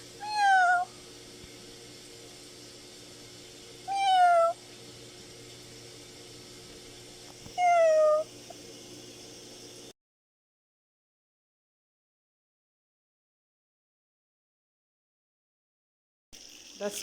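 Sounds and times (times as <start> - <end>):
faint steady hum: 0.0 - 9.9
cat meowing: 0.2 - 0.9, 3.9 - 4.6, 7.6 - 8.3.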